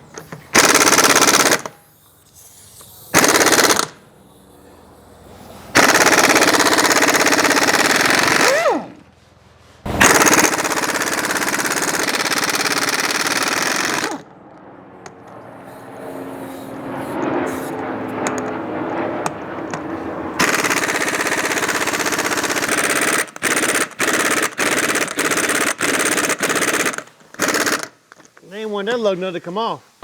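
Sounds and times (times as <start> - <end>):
impact wrench hammering: 0.0 - 1.8, 3.1 - 4.0, 5.7 - 9.0, 9.9 - 14.2, 19.2 - 28.3.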